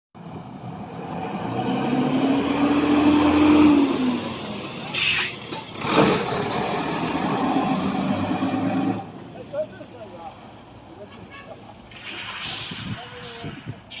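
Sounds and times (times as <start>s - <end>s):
truck diesel engine revving: 0.2s - 9.4s
short hiss: 11.9s - 14.0s.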